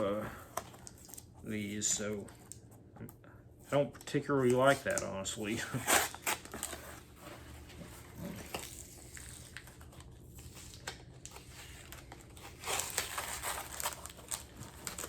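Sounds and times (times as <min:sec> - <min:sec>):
paper and tape rustling: 0:03.7 - 0:15.0
tape tearing: 0:04.5 - 0:07.0, 0:08.2 - 0:15.0.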